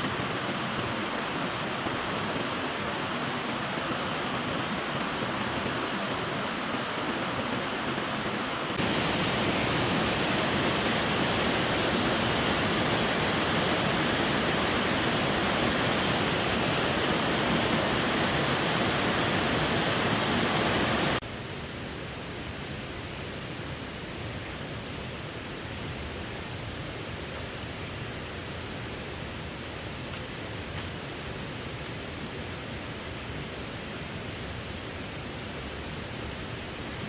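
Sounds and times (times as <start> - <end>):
waterfall rushing water: 0.0 - 21.6.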